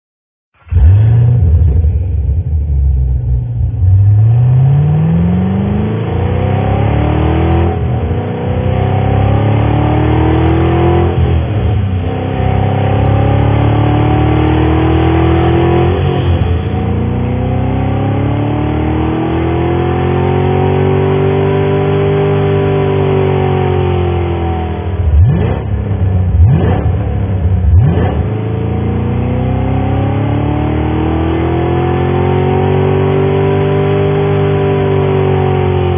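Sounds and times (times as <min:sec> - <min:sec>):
car engine quick sharp revs: 0:00.6 - 0:02.1
car engine accelerating hard: 0:00.6 - 0:35.9.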